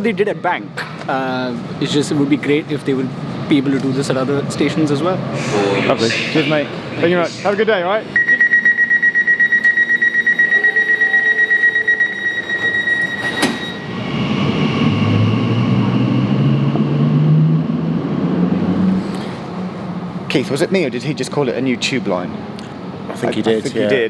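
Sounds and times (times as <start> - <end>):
door warning beeps: 8.2 - 14.4
train motors accelerating: 10.0 - 20.3
train doors clunking shut: 10.6 - 14.6.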